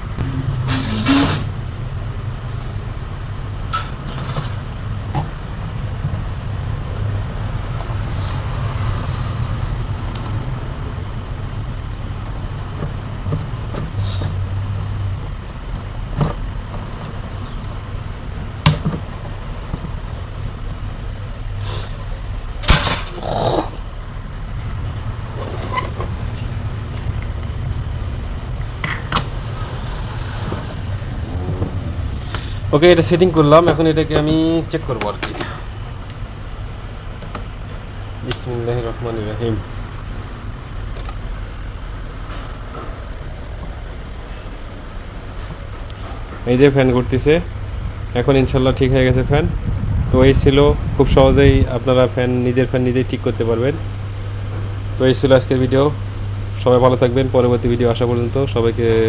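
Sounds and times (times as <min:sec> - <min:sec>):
road traffic rumble: 0:00.0 - 0:59.0
clicks and knocks of fan parts: 0:22.6 - 0:23.2.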